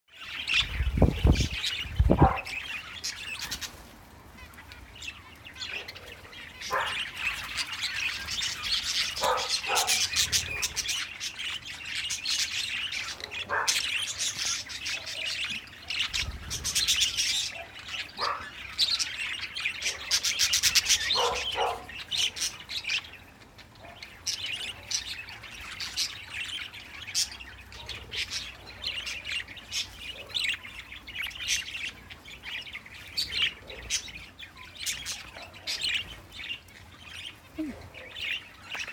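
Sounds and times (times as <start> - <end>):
budgerigars warbling and chattering: 0.1 - 38.9.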